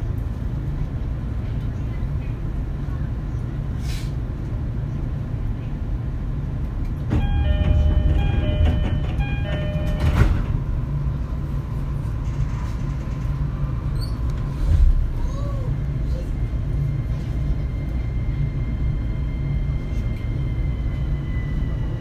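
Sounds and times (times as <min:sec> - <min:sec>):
train wheels rumbling on rails: 0:00.0 - 0:22.0
level crossing bell ringing: 0:07.2 - 0:10.3.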